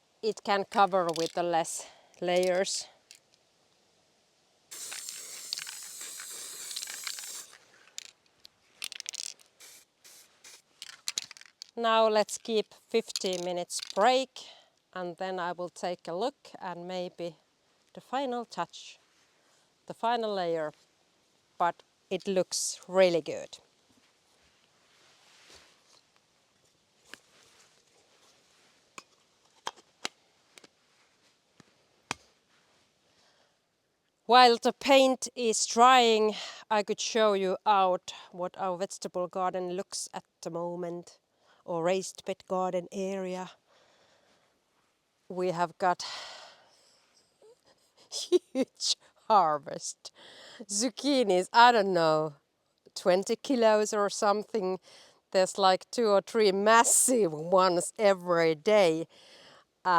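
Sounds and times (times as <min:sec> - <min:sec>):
spray paint can hissing: 0:04.7 - 0:07.6, 0:09.1 - 0:11.0.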